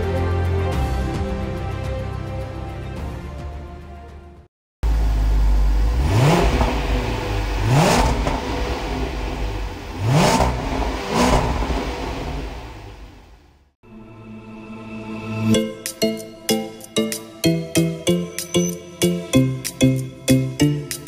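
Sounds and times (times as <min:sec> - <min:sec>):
car engine idling: 0:04.8 - 0:13.7
engine revving in short blips: 0:05.8 - 0:12.8.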